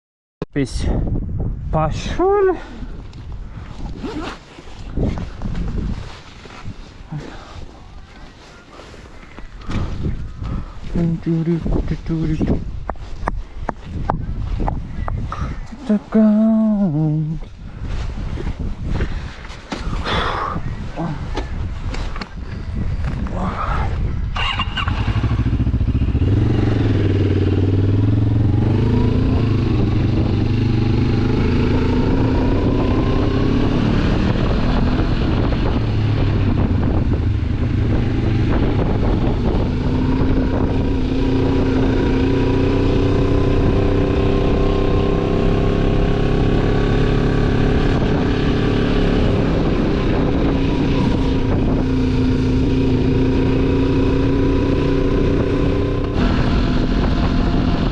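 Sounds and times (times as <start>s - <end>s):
motorcycle engine accelerating: 24.3s - 57.9s.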